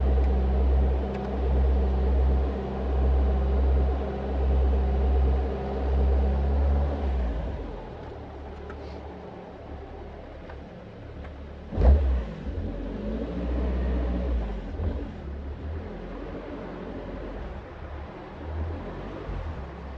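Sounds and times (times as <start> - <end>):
car engine running: 0.0 - 12.8.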